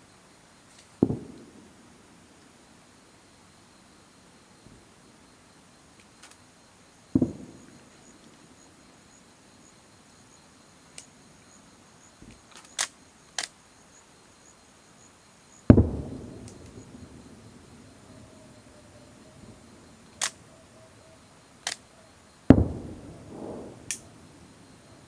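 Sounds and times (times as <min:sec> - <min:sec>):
distant fireworks booming: 0:01.0 - 0:02.0, 0:07.1 - 0:08.2, 0:15.6 - 0:25.0
sharp clicks: 0:06.0 - 0:06.4, 0:12.3 - 0:13.6, 0:15.7 - 0:16.8, 0:20.0 - 0:20.4, 0:21.6 - 0:21.9.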